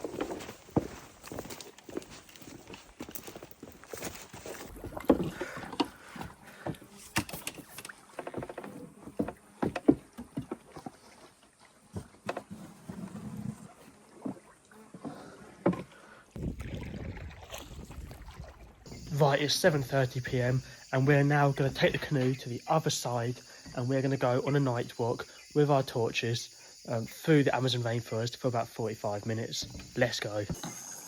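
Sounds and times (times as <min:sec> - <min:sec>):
paddle knocking against hull: 0:04.7 - 0:11.0
water splashing: 0:16.3 - 0:21.2.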